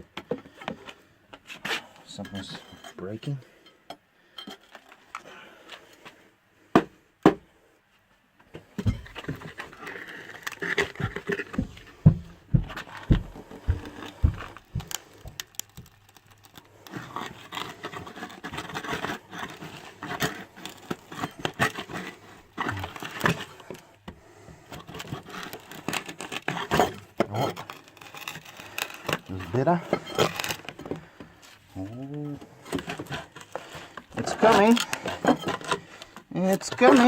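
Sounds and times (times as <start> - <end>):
timber scraping on brick: 1.4 - 3.4, 8.8 - 37.0
wood and nails cracking: 8.8 - 11.9, 12.7 - 37.0.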